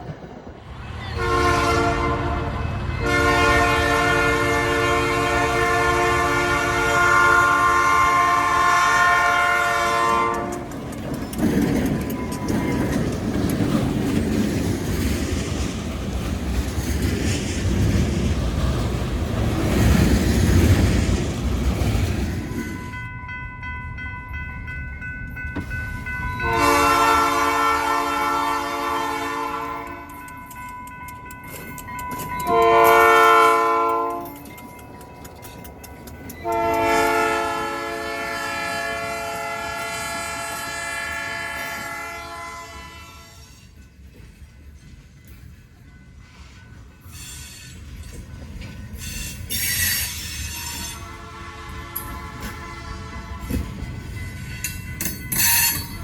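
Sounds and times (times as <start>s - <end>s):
train rumbling and clattering past: 0.0s - 56.0s
train horn blowing: 1.1s - 10.7s, 26.4s - 30.1s, 32.4s - 34.4s, 36.4s - 43.7s, 50.0s - 53.8s.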